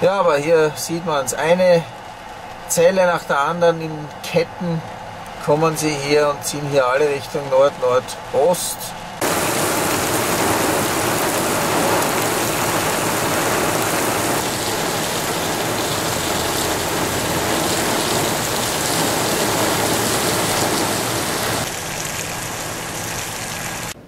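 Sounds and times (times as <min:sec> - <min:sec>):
heavy rain on pavement: 0:09.1 - 0:24.0.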